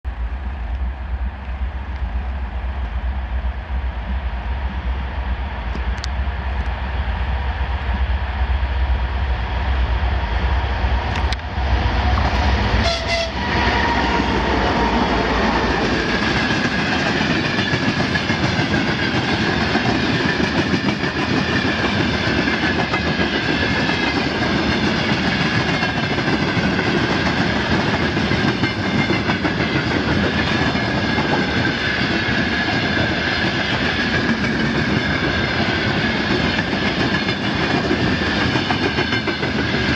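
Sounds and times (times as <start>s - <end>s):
diesel locomotive engine rumbling: 0.0s - 39.9s
train horn: 12.7s - 15.8s.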